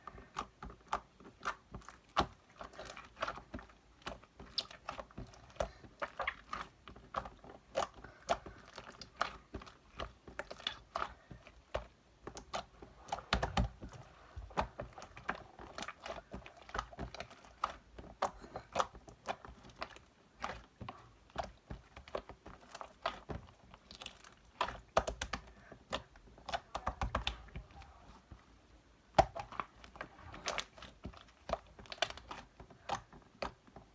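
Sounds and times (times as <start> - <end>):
slime clicking and popping: 23.8 - 27.4, 29.1 - 29.7.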